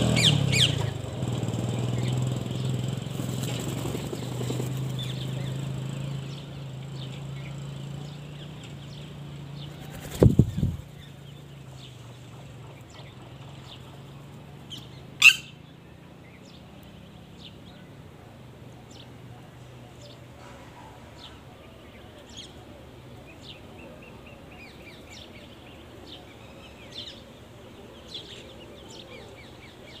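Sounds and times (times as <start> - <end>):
birds chirping: 0.0 - 30.0
shrill bird call: 15.2 - 15.7.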